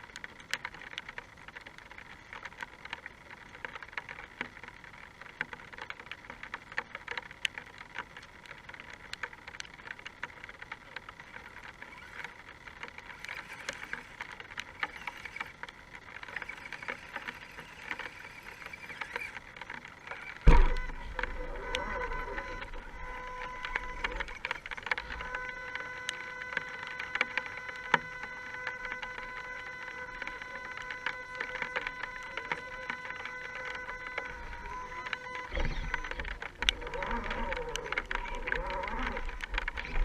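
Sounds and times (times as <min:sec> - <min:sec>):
rain pattering: 0:00.0 - 0:40.0
loud thump: 0:20.4 - 0:20.9.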